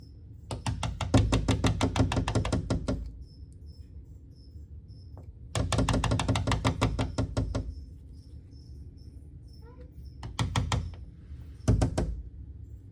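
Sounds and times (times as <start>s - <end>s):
bird beak knocking on surface: 0.5s - 3.1s, 5.6s - 7.8s, 10.2s - 11.0s.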